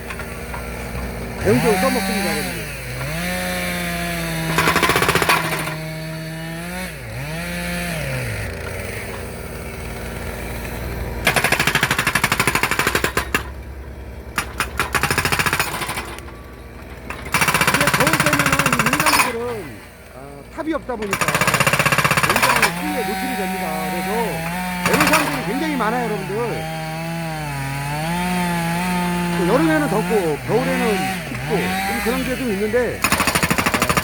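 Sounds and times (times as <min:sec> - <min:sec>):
excavator engine humming: 0:00.0 - 0:34.0
hydraulic breaker hammering: 0:00.0 - 0:34.0.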